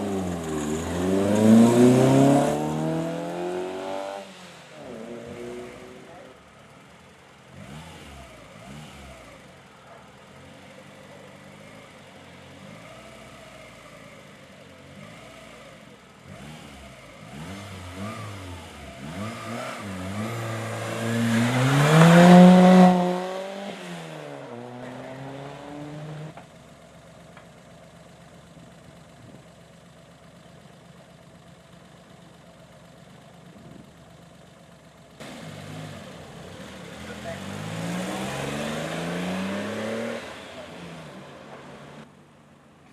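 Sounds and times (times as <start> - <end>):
race car engine accelerating: 0.0 - 6.5, 7.5 - 9.6, 14.9 - 26.4, 35.2 - 42.1.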